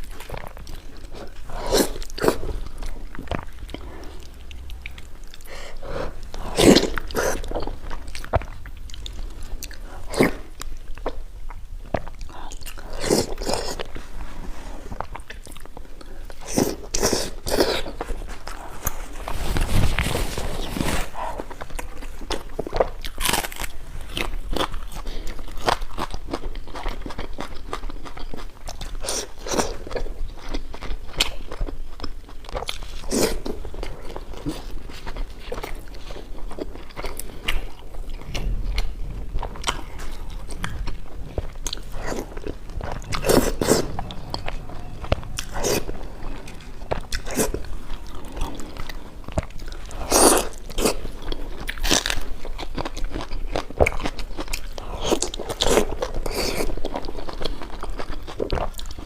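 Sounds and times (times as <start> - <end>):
person chewing crunchy food: 0.0 - 59.0.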